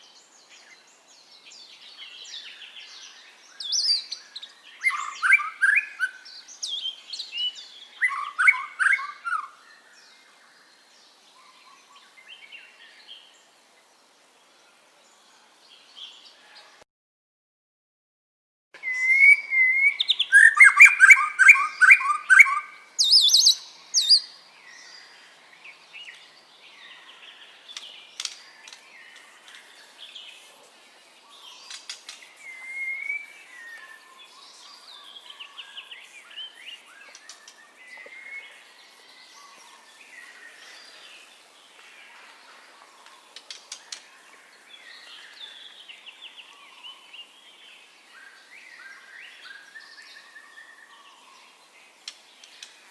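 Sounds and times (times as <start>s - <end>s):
bird singing whistles and trills: 1.5s - 10.2s, 18.8s - 25.2s, 31.3s - 41.3s.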